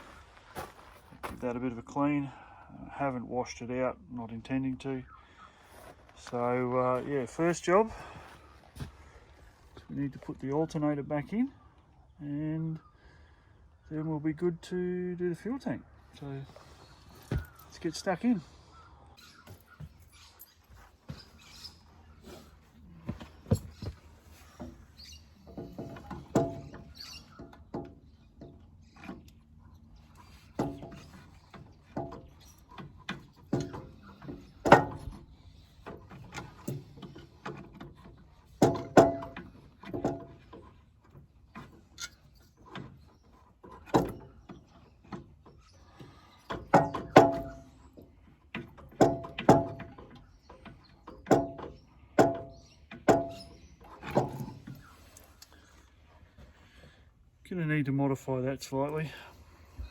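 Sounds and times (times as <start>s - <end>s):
metallic clanks and knocks: 25.4s - 29.3s, 30.5s - 43.0s, 46.5s - 47.8s, 48.5s - 54.9s.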